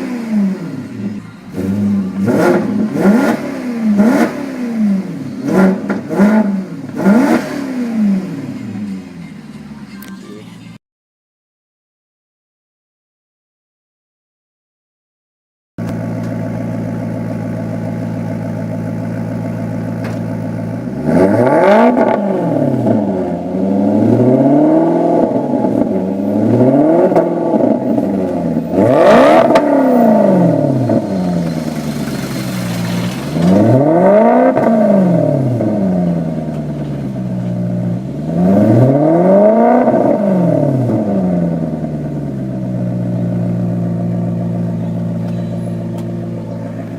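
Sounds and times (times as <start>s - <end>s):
car engine idling and revving: 0.0s - 10.8s, 15.8s - 46.9s
exhaust crack: 15.8s - 23.1s, 25.2s - 38.2s.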